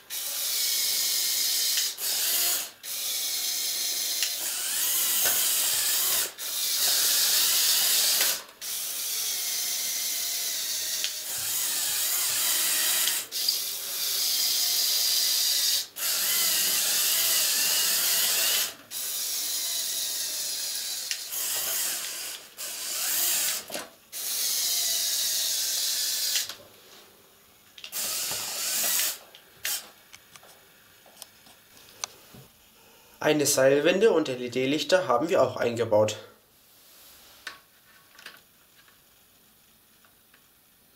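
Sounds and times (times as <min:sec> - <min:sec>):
toy truck motors whining: 0:00.0 - 0:26.6, 0:27.9 - 0:30.0.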